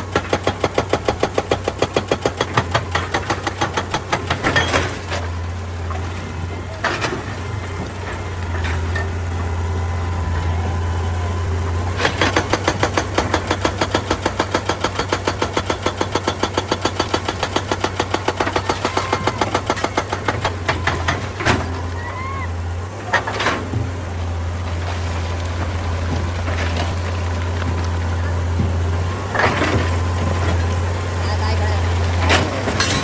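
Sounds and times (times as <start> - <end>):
hydraulic breaker hammering stone: 0.0 - 9.1, 11.9 - 21.9, 31.9 - 33.0
excavator diesel engine running: 0.0 - 33.0.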